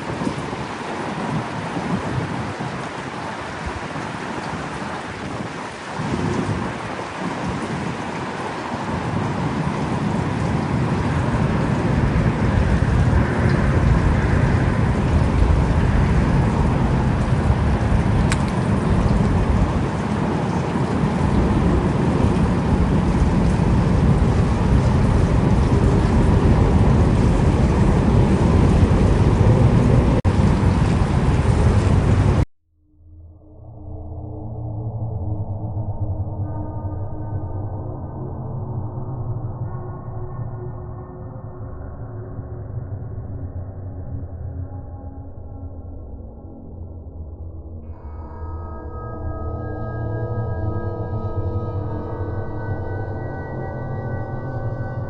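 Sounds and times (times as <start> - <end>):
heavy rain: 0.0 - 32.4
low rumble of thunder: 0.0 - 32.4.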